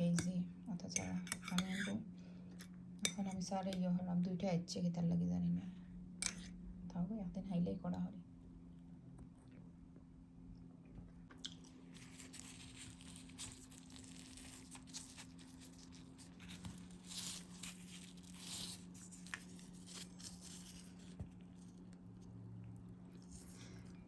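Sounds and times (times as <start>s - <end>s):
low steady hum: 0.0s - 24.0s
crackles: 11.4s - 24.0s
rustling and crunching: 11.4s - 24.0s.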